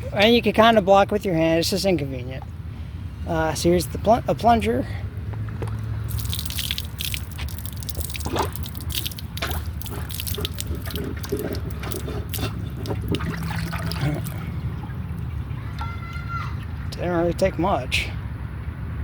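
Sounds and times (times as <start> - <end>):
water splashing and dripping: 5.6 - 17.1
plunger working in water: 6.1 - 15.5.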